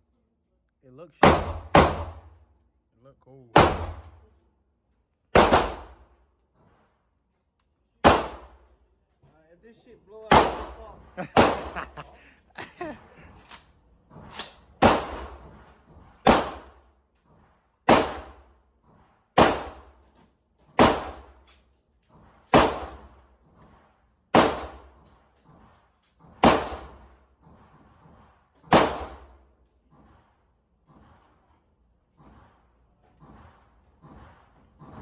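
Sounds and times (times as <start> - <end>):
fainter gunshots: 1.2 - 2.2, 3.6 - 4.1, 5.4 - 6.0, 8.0 - 8.6, 10.3 - 12.0, 14.8 - 15.5, 16.2 - 16.8, 17.9 - 18.4, 19.4 - 19.9, 20.8 - 21.3, 22.5 - 23.1, 24.4 - 24.9, 26.4 - 27.0, 28.7 - 29.3
shotgun blasts: 1.2 - 2.3, 3.6 - 4.2, 5.4 - 6.0, 8.0 - 8.6, 10.3 - 12.0, 14.8 - 15.4, 16.2 - 16.8, 17.9 - 18.4, 19.4 - 19.9, 20.8 - 21.4, 22.5 - 23.2, 24.3 - 25.0, 26.4 - 27.0, 28.7 - 29.4.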